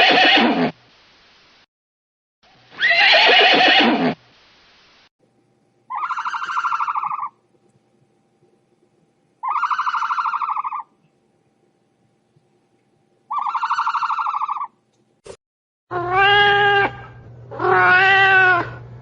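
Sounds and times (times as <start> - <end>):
buzzy high-pitched animal call: 0.0 - 0.7, 2.8 - 4.2, 5.9 - 7.4, 9.4 - 10.9, 13.3 - 14.8, 15.9 - 18.8.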